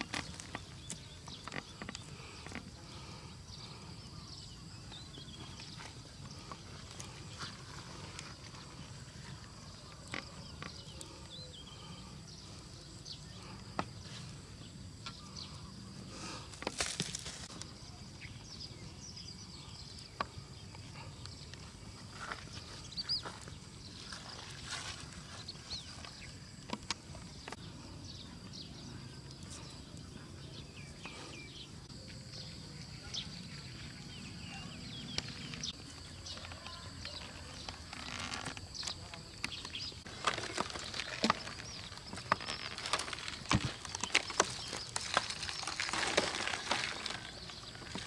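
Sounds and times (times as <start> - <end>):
bird-like chirp: 17.4 - 48.0.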